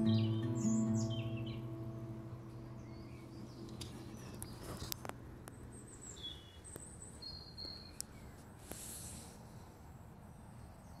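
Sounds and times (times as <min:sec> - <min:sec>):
faint bird chirps: 0:00.0 - 0:04.9, 0:05.6 - 0:08.4
low outdoor background rumble: 0:00.0 - 0:11.0.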